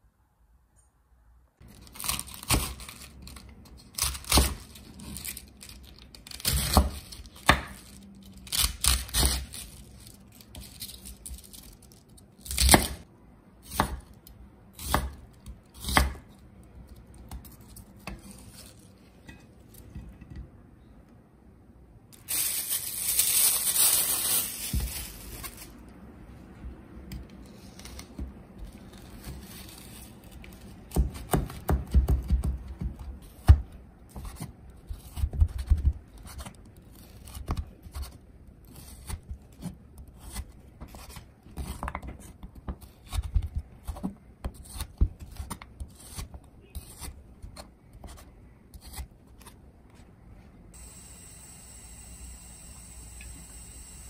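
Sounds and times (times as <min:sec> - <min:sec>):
knife chopping on wooden board: 0:14.8 - 0:15.2, 0:30.9 - 0:34.4
loud rustling and tearing: 0:22.2 - 0:25.9, 0:28.8 - 0:30.8.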